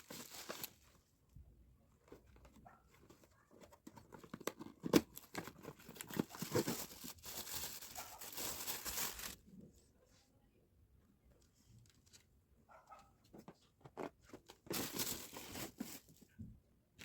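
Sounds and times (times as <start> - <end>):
packaging crinkling and tearing: 0.0 - 0.8, 3.8 - 9.4, 14.6 - 16.0.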